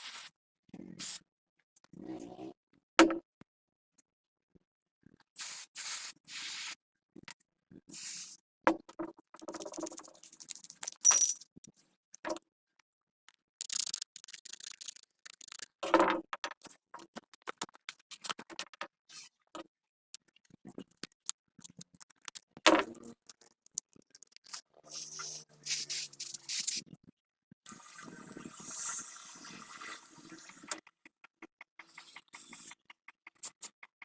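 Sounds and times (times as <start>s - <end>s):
clicks and scraping of small parts: 9.4s - 11.5s, 13.3s - 27.0s, 30.3s - 34.0s.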